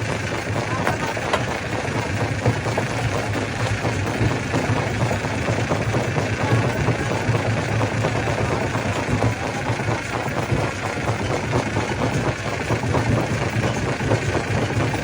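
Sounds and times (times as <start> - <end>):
rock crushing clatter: 0.1 - 12.0.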